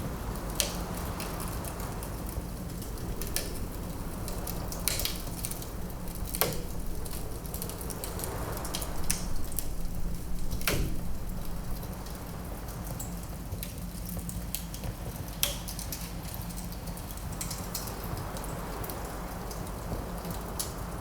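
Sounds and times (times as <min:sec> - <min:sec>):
wood fire burning: 0:00.0 - 0:21.0
logs popping and snapping: 0:02.7 - 0:12.4.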